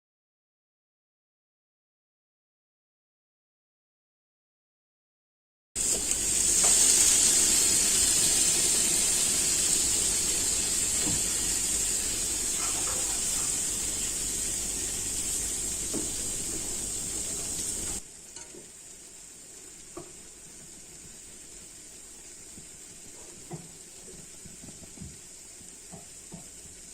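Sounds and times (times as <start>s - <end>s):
food sizzling in a hot pan: 5.8s - 26.9s.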